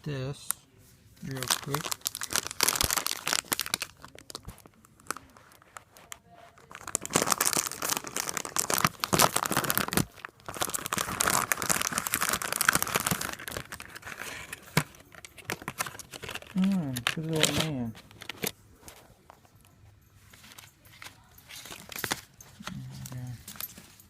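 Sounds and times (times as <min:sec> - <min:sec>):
packaging crinkling and tearing: 0:01.2 - 0:19.0.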